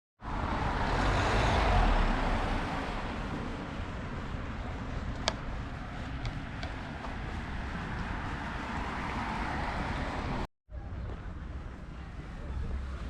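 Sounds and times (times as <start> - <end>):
road traffic rushing: 0.2 - 10.5.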